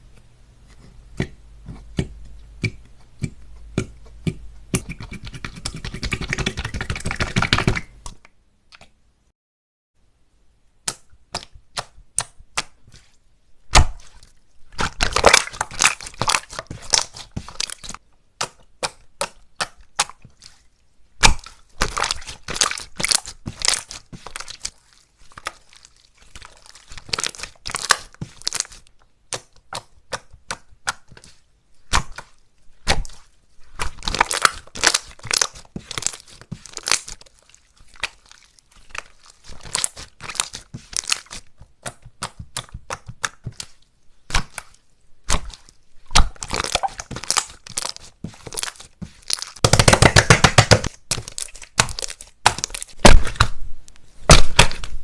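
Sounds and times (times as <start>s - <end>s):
slime crackling and popping: 13.7s - 20.6s, 21.2s - 31.3s, 31.9s - 53.6s, 54.2s - 55.0s.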